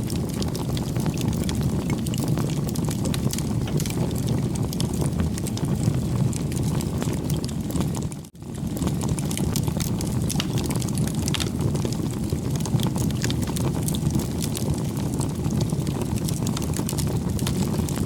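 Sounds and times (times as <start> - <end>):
bonfire crackling and popping: 0.0 - 18.0.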